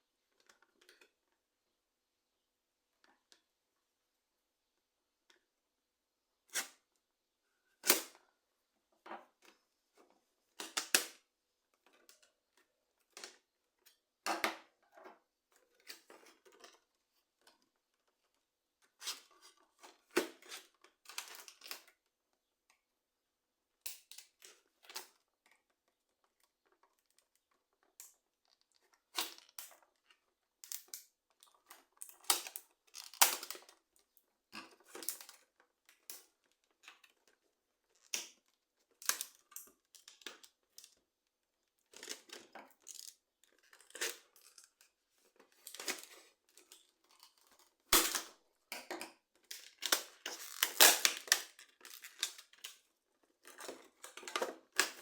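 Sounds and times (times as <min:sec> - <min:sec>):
packaging tearing: 0:50.3 - 0:51.4.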